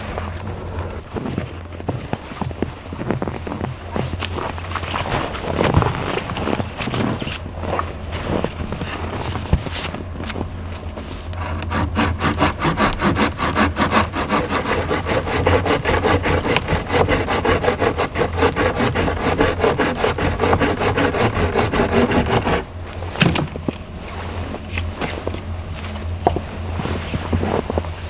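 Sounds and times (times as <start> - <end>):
hand saw cutting wood: 11.3 - 23.5.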